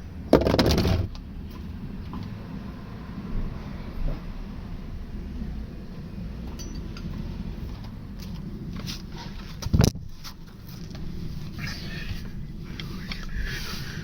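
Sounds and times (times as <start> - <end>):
small metallic clinks: 6.4 - 7.3.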